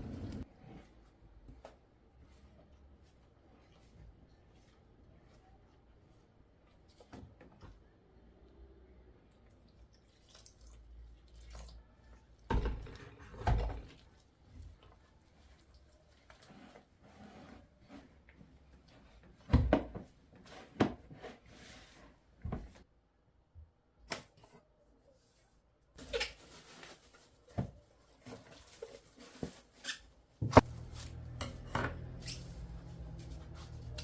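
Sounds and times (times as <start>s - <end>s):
dishes and utensils clinking: 31.3s - 32.6s.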